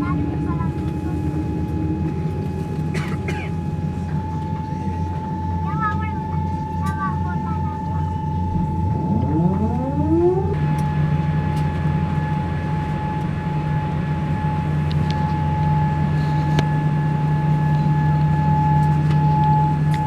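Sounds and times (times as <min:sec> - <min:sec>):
aircraft cabin systems hum: 0:00.0 - 0:20.0
constant high whine: 0:00.0 - 0:20.0
machine spooling up whine: 0:07.6 - 0:20.0.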